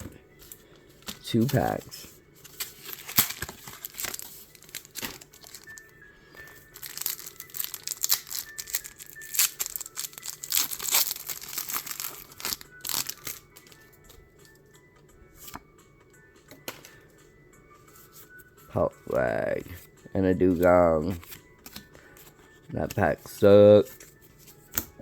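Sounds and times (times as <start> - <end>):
plastic and foil packaging crinkling: 0.4 - 14.5.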